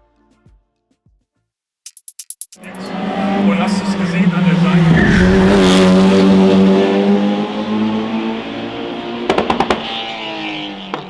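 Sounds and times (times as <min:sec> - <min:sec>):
racing car engine at high revs: 0:02.6 - 0:11.0.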